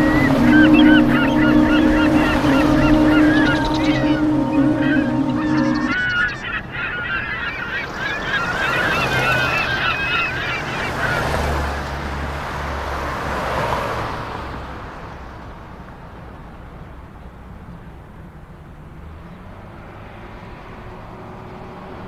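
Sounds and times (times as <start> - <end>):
rushing noise: 0.0 - 11.8
birds honking: 0.0 - 12.0.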